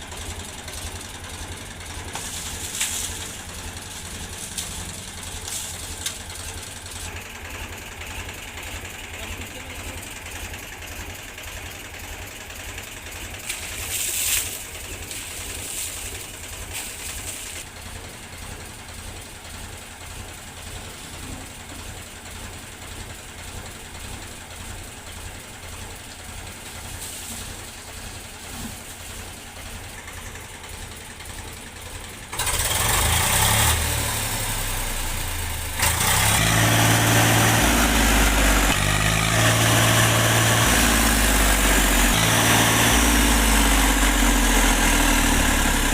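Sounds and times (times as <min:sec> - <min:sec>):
tractor diesel engine: 0:00.0 - 0:45.9.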